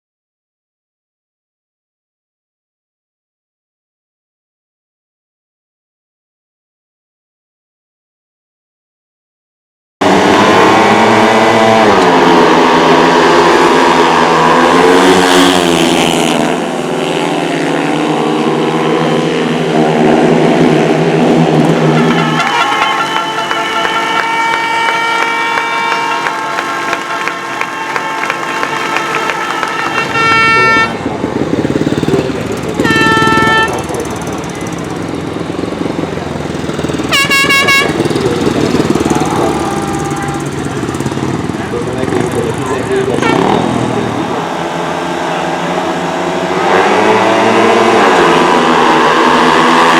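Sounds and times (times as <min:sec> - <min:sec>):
motorcycle engines racing: 0:10.0 - 0:49.9
air horn blasts: 0:21.8 - 0:31.0, 0:32.8 - 0:33.9, 0:37.1 - 0:38.2, 0:39.1 - 0:40.9, 0:43.1 - 0:48.6.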